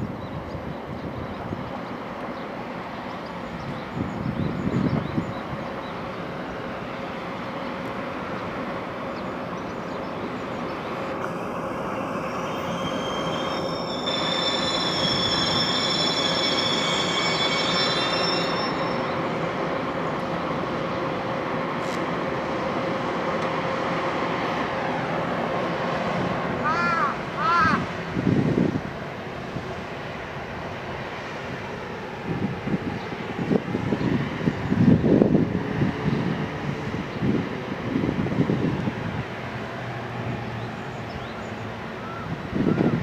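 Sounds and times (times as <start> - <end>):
train rumbling on rails: 0.0 - 43.0
wheel and brake squeal: 11.4 - 19.5.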